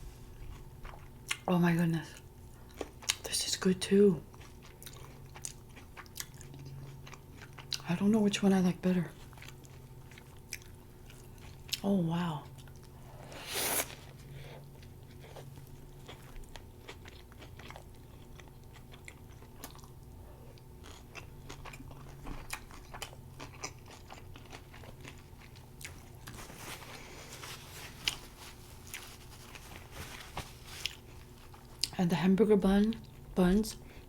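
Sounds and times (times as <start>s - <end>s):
low steady hum: 0.0s - 34.0s
person chewing food: 0.3s - 1.5s, 2.2s - 3.2s, 4.3s - 7.8s, 9.2s - 11.8s, 13.9s - 32.0s.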